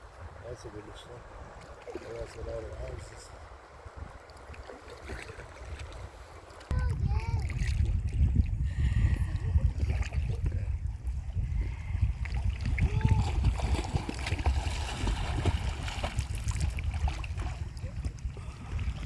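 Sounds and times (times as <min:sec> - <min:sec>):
paddle strokes splashing water: 0:01.4 - 0:08.5, 0:12.1 - 0:19.0.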